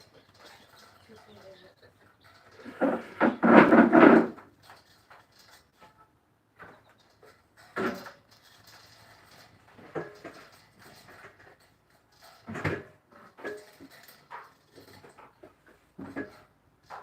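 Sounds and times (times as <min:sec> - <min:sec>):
birds harsh calls: 0:00.0 - 0:03.8.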